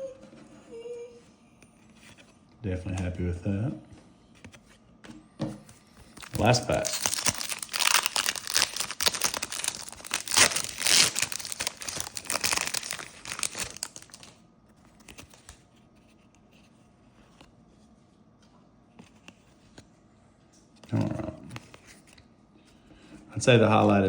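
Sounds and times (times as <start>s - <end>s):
wrapper tearing and crinkling: 6.2s - 14.4s.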